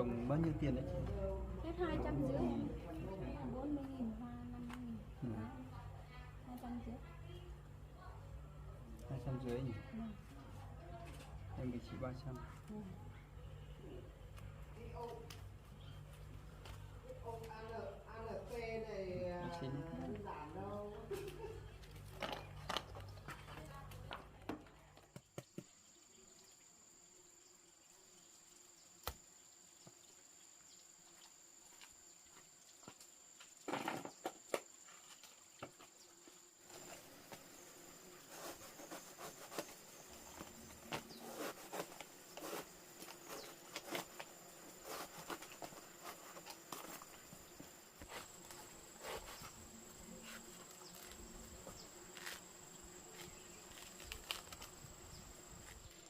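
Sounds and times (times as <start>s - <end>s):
insects shrilling: 25.7s - 56.0s.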